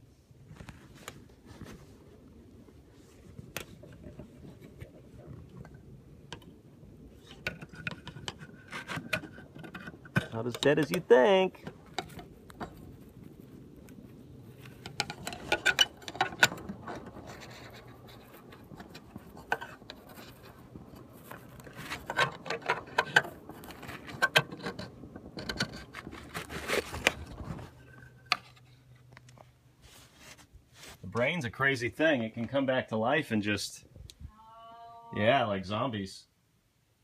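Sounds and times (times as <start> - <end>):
steady low hum: 0.0 - 34.4
scraping tapping and rattling: 3.4 - 29.5.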